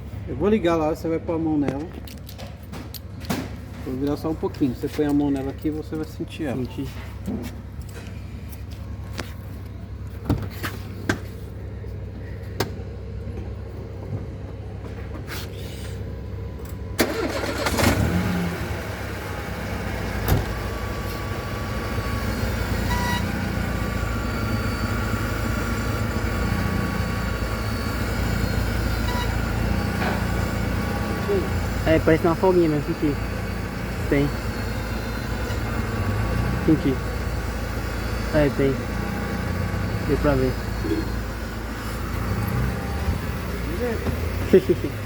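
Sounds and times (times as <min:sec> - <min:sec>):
car engine idling: 0:16.1 - 0:45.0.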